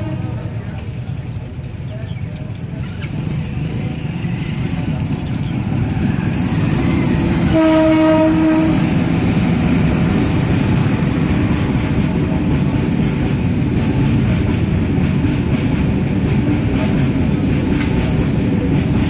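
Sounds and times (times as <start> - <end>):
train horn blast: 0.0 - 0.6, 7.4 - 9.2
train wheels rumbling on track: 0.0 - 19.0.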